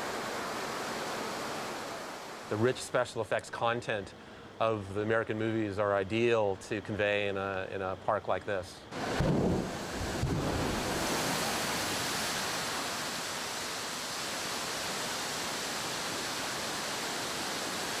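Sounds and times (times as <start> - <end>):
water cascading down rocks: 9.0 - 18.0.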